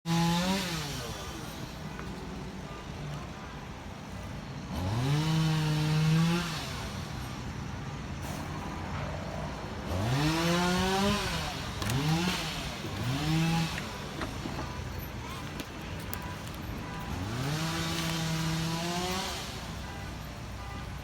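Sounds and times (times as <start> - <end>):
engine revving: 0.1 - 1.6, 4.7 - 7.1, 9.8 - 14.9, 17.0 - 19.8.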